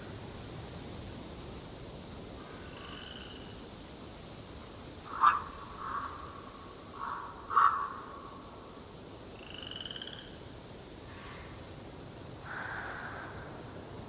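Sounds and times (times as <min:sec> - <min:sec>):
faint steady background noise: 0:00.0 - 0:14.0
wildlife calls: 0:05.0 - 0:08.6, 0:12.4 - 0:13.7.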